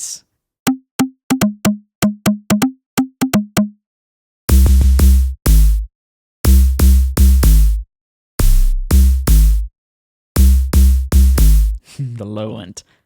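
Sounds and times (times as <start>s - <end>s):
heavy electronic drum hits: 4.5s - 5.9s, 6.5s - 7.8s, 8.4s - 9.7s, 10.4s - 11.8s.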